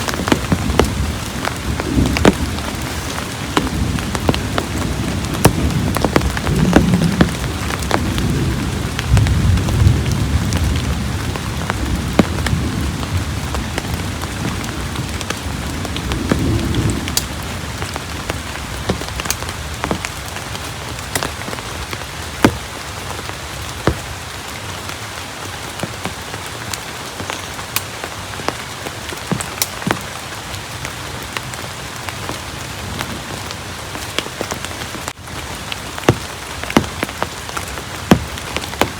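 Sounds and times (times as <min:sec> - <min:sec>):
low rumble of thunder: 0:00.0 - 0:21.1
heavy rain falling: 0:00.0 - 0:38.9
raindrops ticking close by: 0:00.0 - 0:38.9.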